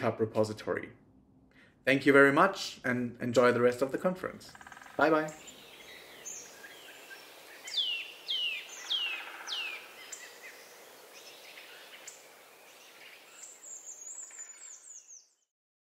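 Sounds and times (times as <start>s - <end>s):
faint steady hiss: 0.0s - 15.0s
high-pitched bird twittering: 4.5s - 10.6s
songbirds singing: 4.5s - 15.5s.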